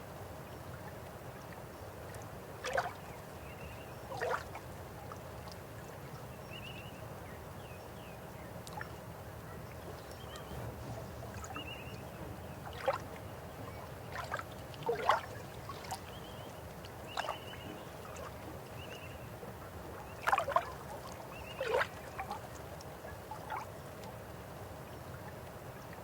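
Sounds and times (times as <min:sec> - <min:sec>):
river water flowing: 0:00.1 - 0:06.4, 0:08.2 - 0:26.0
water plops and gurgles: 0:02.1 - 0:03.1, 0:04.1 - 0:04.6, 0:11.3 - 0:13.2, 0:13.8 - 0:19.0, 0:20.0 - 0:24.2.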